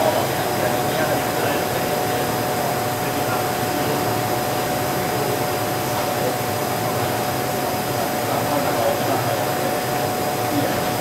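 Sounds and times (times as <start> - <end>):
workshop machinery droning: 0.0 - 11.0.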